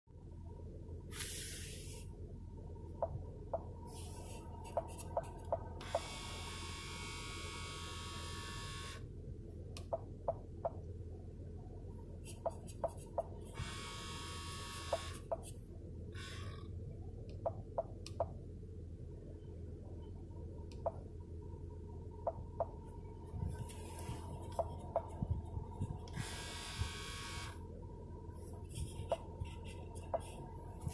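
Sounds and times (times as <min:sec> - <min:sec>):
steady low hum: 0:00.1 - 0:30.9
vent actuator whining: 0:12.4 - 0:15.5, 0:22.2 - 0:27.7.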